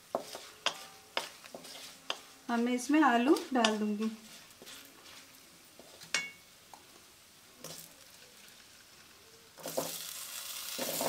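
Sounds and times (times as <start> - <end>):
spatula tapping pan: 0.0 - 5.2
oil frying in pan: 0.0 - 11.0
potatoes sizzling in hot oil: 0.0 - 11.0.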